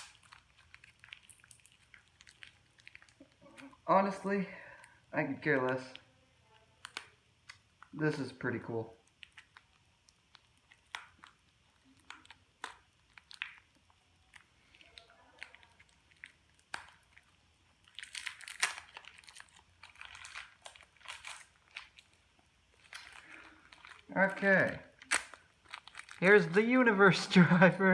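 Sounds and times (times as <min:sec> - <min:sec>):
plastic wrapping crinkling: 0:00.0 - 0:27.9
small plastic parts clicking: 0:05.6 - 0:08.0.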